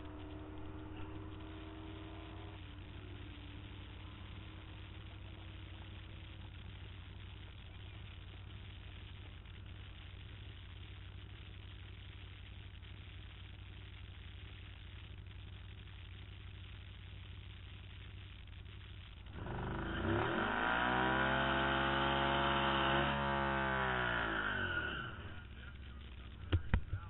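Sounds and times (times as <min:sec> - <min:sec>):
engine idling: 0:00.0 - 0:27.0
engine revving sharply: 0:19.3 - 0:26.4.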